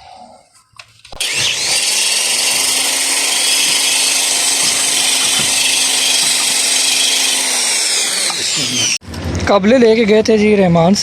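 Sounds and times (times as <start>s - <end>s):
power tool whining: 1.1s - 9.1s.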